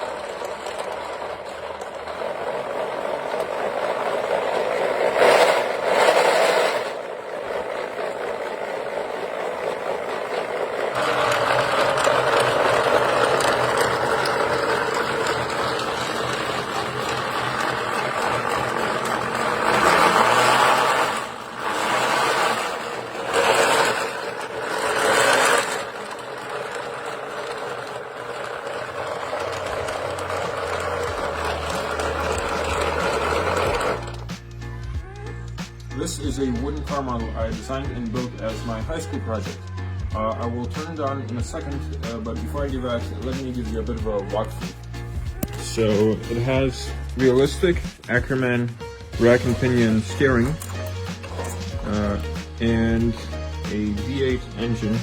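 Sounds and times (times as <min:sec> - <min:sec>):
wooden mechanism rattling: 0:00.0 - 0:34.6, 0:41.6 - 0:55.0
electric motor whirring: 0:00.0 - 0:35.5, 0:44.4 - 0:47.2.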